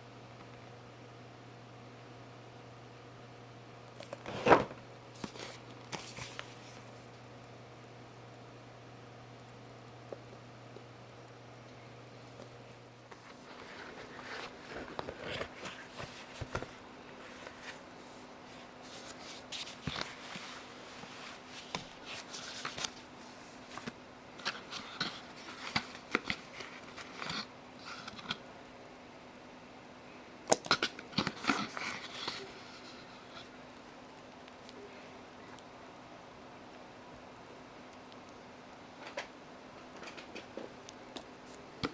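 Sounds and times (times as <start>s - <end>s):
faint steady hum: 0.0s - 41.9s
packaging rustling and crinkling: 13.1s - 17.9s, 18.5s - 27.3s.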